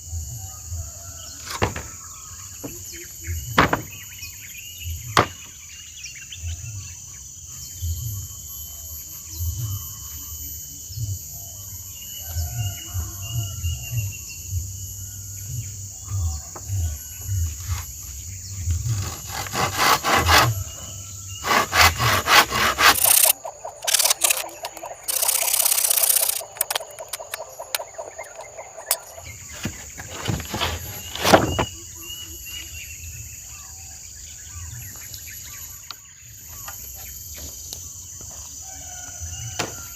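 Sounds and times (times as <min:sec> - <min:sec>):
high insect drone: 0:00.0 - 0:39.9
rough scraping or rustling: 0:18.8 - 0:20.8, 0:21.4 - 0:27.8, 0:28.8 - 0:31.8.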